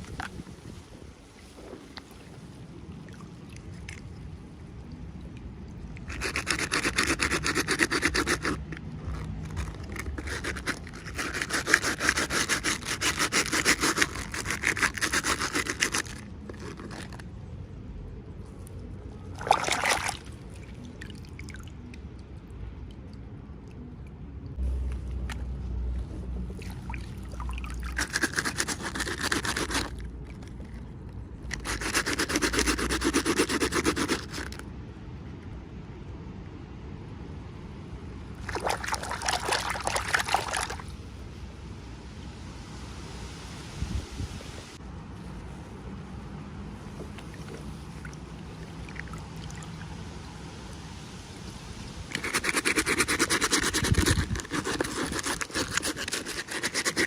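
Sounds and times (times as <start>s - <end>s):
packaging rustling and scraping: 52.2s - 57.0s.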